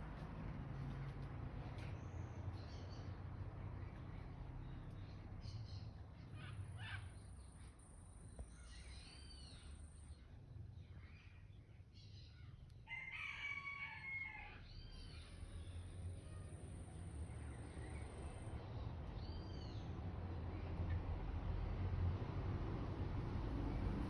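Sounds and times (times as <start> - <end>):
faint birdsong: 0.8 - 21.0
rooster crowing: 12.9 - 14.7.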